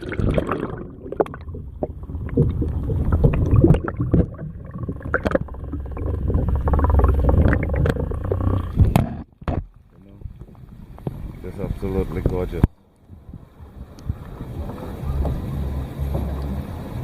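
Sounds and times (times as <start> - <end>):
low rumble: 0.0 - 9.0
water sloshing around kayak: 0.0 - 17.0
knocks against hull: 8.8 - 9.7.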